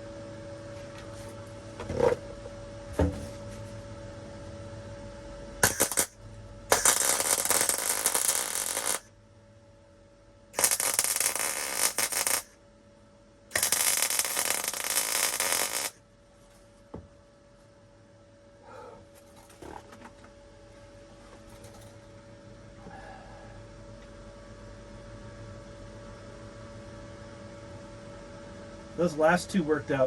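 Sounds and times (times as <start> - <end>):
welder sputtering: 5.6 - 9.1, 10.6 - 12.5, 13.5 - 16.0.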